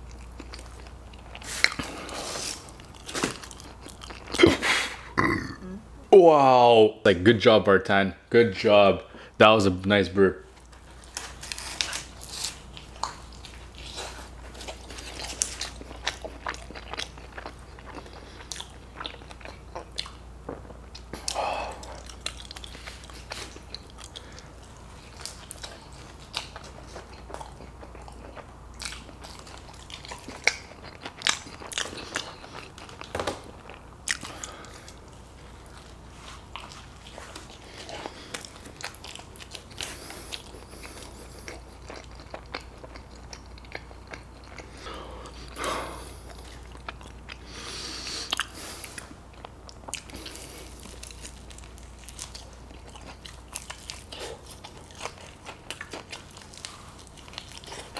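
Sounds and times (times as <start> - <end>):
man biting and chewing food: 0.0 - 5.5, 10.6 - 57.9.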